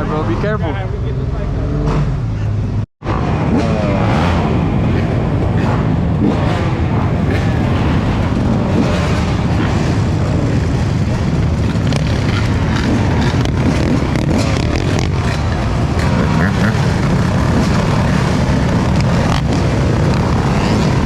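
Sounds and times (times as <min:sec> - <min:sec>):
moving vehicle noise: 0:00.0 - 0:21.0.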